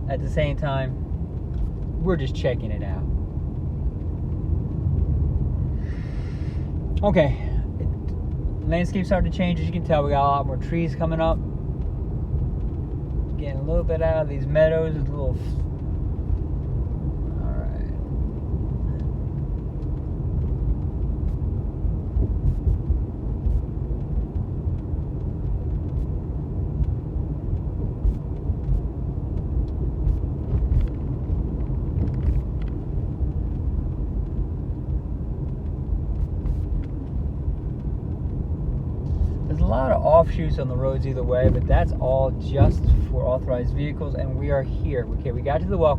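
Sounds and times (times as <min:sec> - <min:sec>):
tyre and engine rumble: 0:00.0 - 0:45.9.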